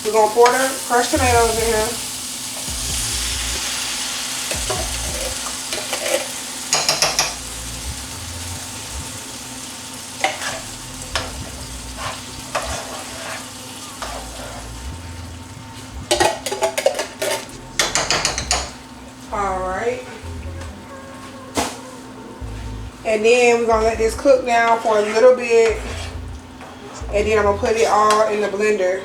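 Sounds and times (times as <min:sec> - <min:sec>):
tomatoes sizzling in hot pot: 0:00.0 - 0:20.4
utensil scraping and clinking pot: 0:04.5 - 0:07.6, 0:10.2 - 0:18.8, 0:24.6 - 0:27.0.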